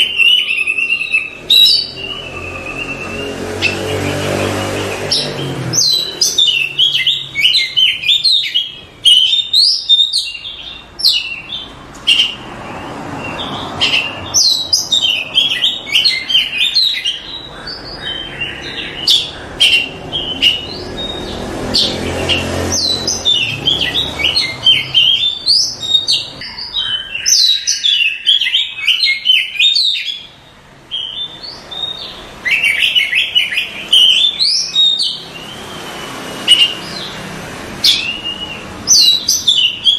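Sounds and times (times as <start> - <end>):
bird singing rapidly: 0.0 - 39.9.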